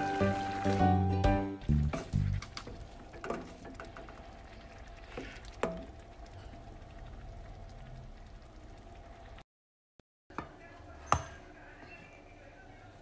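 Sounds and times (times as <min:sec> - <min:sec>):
squid frying in a wok: 0:01.7 - 0:09.4.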